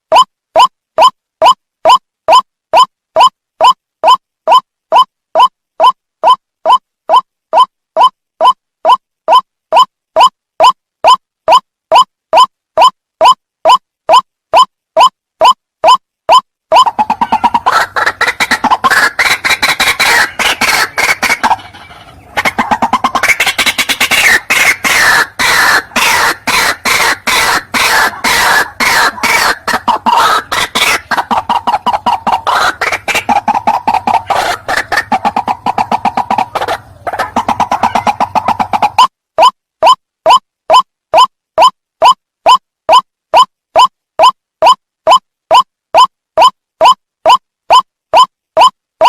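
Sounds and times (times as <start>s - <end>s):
waterhen calling: 16.7s - 40.8s.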